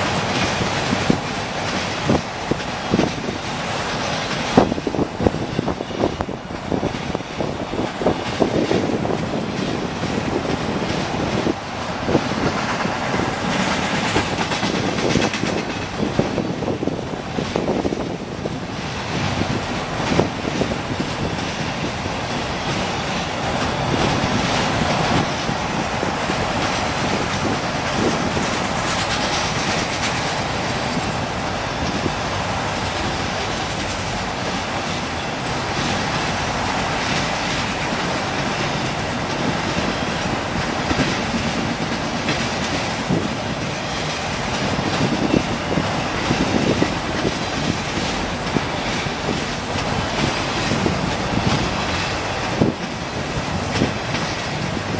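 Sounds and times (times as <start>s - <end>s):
train rumbling past: 0.0s - 54.9s
train wheels clicking: 0.0s - 54.9s.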